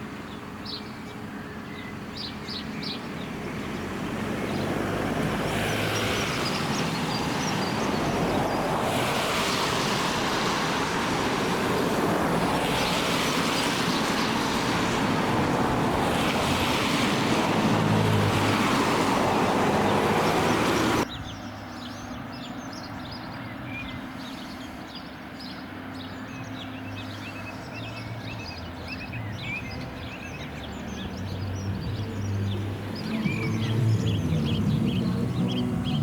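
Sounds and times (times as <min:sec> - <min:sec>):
rushing river water: 0:03.1 - 0:21.1, 0:24.3 - 0:36.0
birds chirping and singing: 0:19.6 - 0:36.0.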